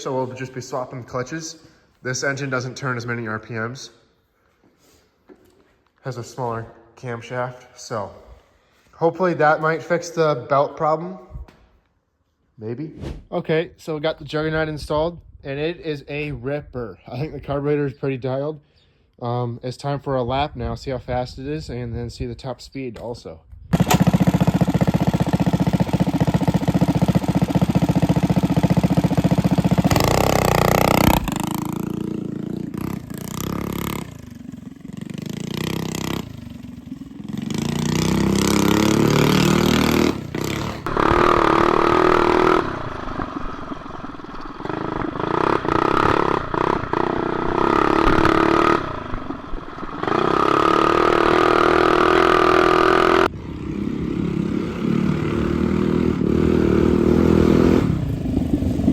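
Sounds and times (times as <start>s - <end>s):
mini bike engine revving: 23.8s - 58.9s.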